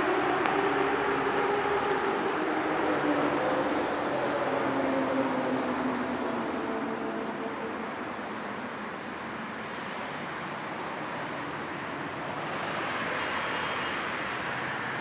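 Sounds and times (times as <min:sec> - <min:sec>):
car and tyre noise: 0:00.0 - 0:15.0.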